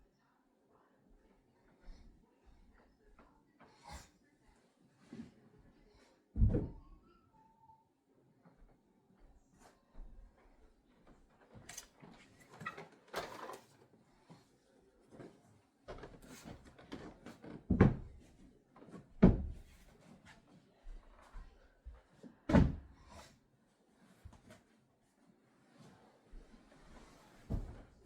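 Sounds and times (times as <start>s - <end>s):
clatter of things handled: 11.4s - 14.4s.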